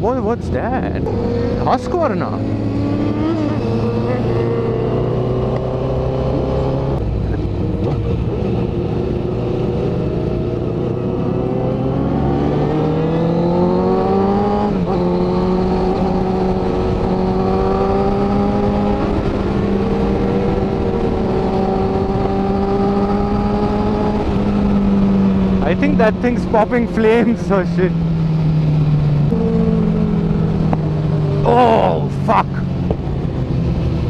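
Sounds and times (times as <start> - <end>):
road noise: 0.0 - 34.0
motorcycle engine running: 15.1 - 34.0.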